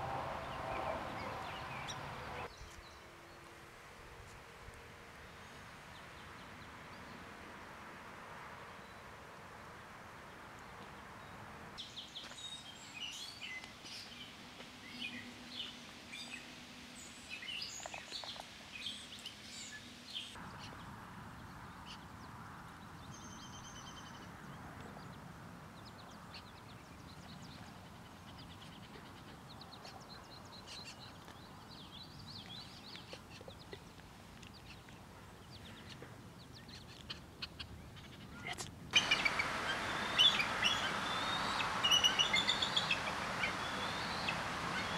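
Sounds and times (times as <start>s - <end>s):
wild birds chirping and trilling: 0.0s - 3.5s, 25.8s - 44.9s
steady background hiss: 0.0s - 24.1s, 38.7s - 44.9s.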